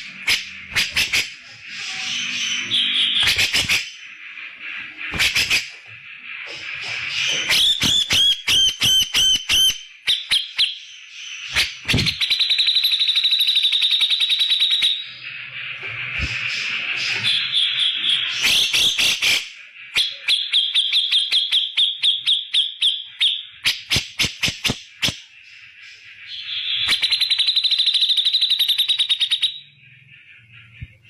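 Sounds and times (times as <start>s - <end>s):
bird chattering rattle: 0.0s - 1.6s, 3.1s - 5.8s, 23.6s - 25.4s
bulbul calls and trills: 0.0s - 31.0s.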